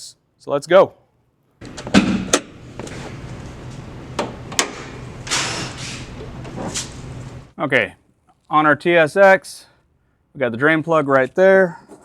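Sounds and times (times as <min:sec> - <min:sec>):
metal knocks and clanks: 0:01.6 - 0:02.9
steady low hum: 0:01.6 - 0:07.6.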